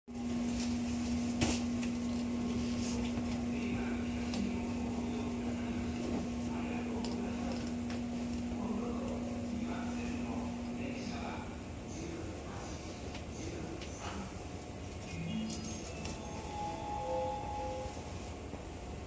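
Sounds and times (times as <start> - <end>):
electrical hum in train car: 0.1 - 19.0.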